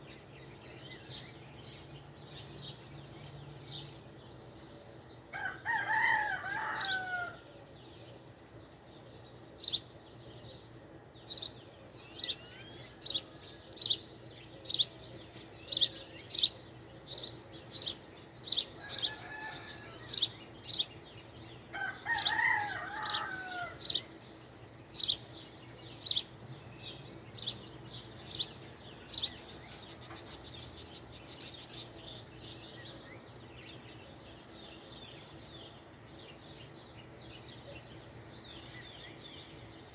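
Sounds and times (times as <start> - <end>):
rooster crowing: 5.3 - 7.4, 18.8 - 20.3, 21.7 - 24.0.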